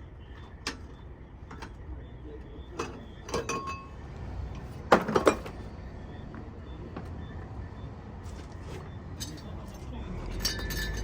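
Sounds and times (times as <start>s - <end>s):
tools clanking on metal hub: 2.8s - 3.9s, 9.1s - 11.0s.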